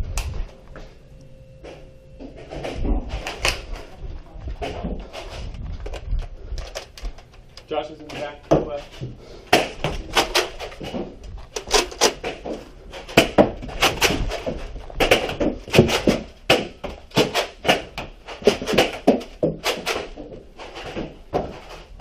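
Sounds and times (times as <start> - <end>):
foam balls striking hard surfaces: 12.1 - 20.4.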